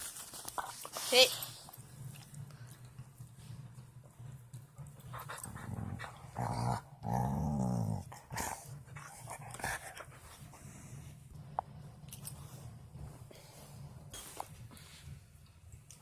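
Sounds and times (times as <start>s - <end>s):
dog growling: 5.2s - 10.2s.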